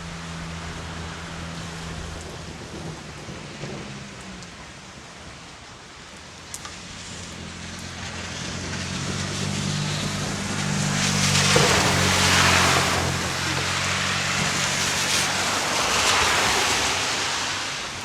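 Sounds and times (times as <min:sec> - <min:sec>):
rain falling: 0:00.0 - 0:18.0.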